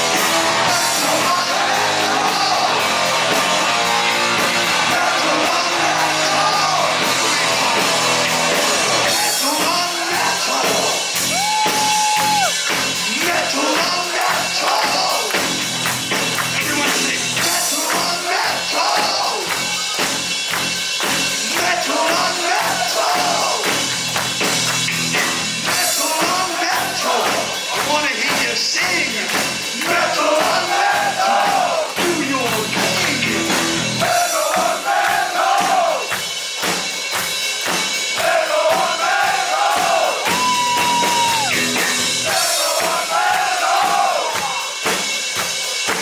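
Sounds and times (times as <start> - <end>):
distorted electric guitars: 0.0 - 9.6, 10.2 - 31.0, 32.0 - 34.1, 40.3 - 42.6
bass guitar: 0.0 - 34.3, 40.2 - 42.6
drums: 0.0 - 46.0.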